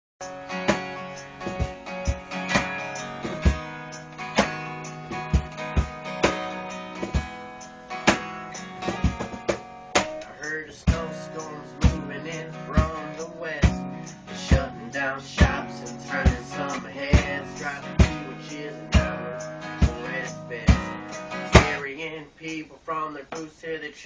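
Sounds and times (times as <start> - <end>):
strummed acoustic guitar: 0.2 - 22.0
cajon hits: 0.6 - 7.4, 8.0 - 10.3, 20.7 - 21.8.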